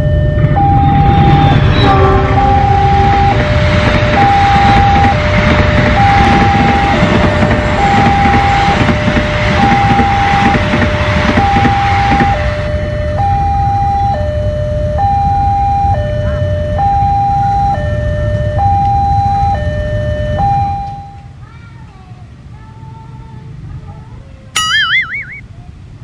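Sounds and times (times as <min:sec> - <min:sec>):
train rumbling over rails: 0:00.0 - 0:14.1, 0:21.3 - 0:24.6
two-tone crossing alarm: 0:00.0 - 0:21.3.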